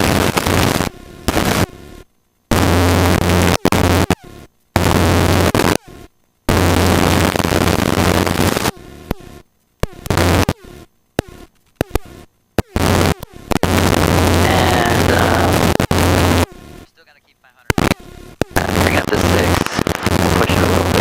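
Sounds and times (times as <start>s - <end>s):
low drone: 12.8s - 17.0s
helicopter cockpit rushing noise: 12.8s - 21.0s.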